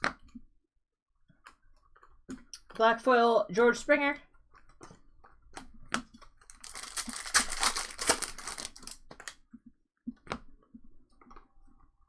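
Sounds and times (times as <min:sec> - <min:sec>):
wrapper crinkling and tearing: 0:06.4 - 0:09.4.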